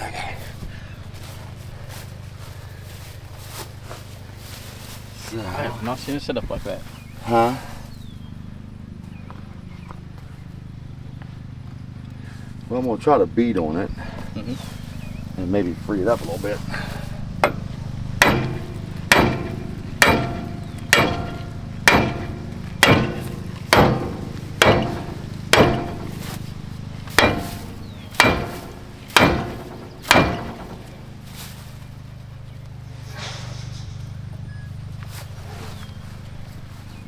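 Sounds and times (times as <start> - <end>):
hammer beating on metal: 17.4 - 31.6.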